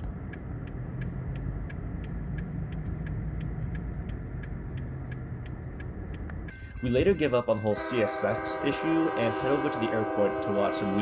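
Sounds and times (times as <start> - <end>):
even ticking: 0.0 - 7.2
locomotive engine rumble: 0.0 - 11.0.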